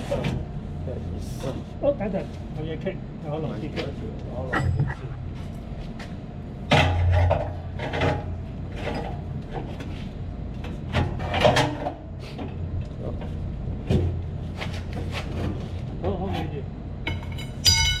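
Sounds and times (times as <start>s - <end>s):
steady low hum: 0.0s - 18.0s
metal knocking and scraping: 4.5s - 5.6s.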